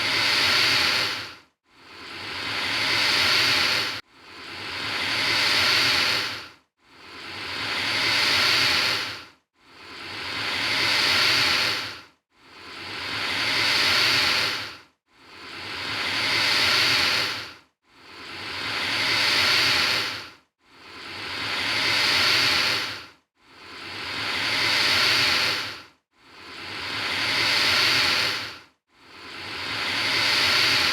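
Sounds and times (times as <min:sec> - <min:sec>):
alligator hissing: 0:00.0 - 0:01.3, 0:02.0 - 0:04.0, 0:04.8 - 0:06.4, 0:07.7 - 0:09.1, 0:09.9 - 0:11.9, 0:13.1 - 0:14.7, 0:15.4 - 0:17.4, 0:18.2 - 0:20.2, 0:21.1 - 0:23.0, 0:23.7 - 0:25.8, 0:26.4 - 0:28.5, 0:29.3 - 0:30.9.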